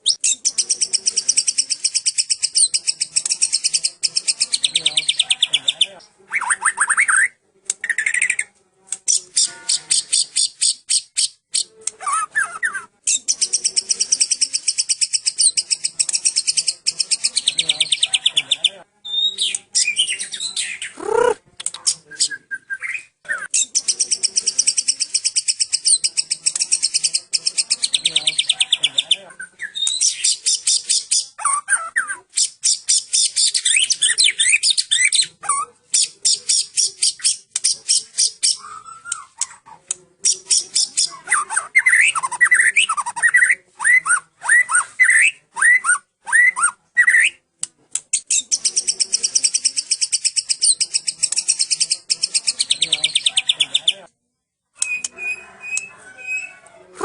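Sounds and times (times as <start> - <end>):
whistled bird notes: 54.8 - 56.6.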